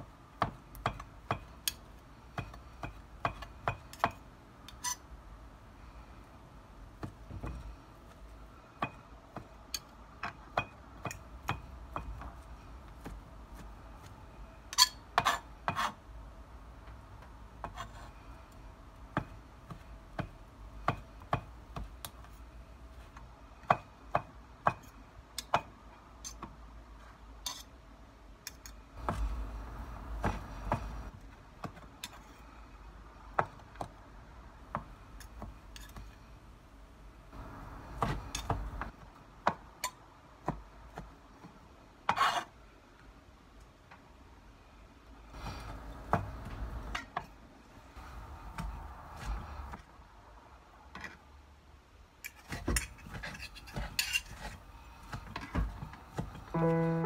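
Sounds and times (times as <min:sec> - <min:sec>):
knife chopping on plastic board: 0:00.4 - 0:04.2, 0:07.0 - 0:08.2, 0:19.1 - 0:22.4, 0:29.0 - 0:29.4, 0:30.1 - 0:31.9, 0:37.9 - 0:39.7.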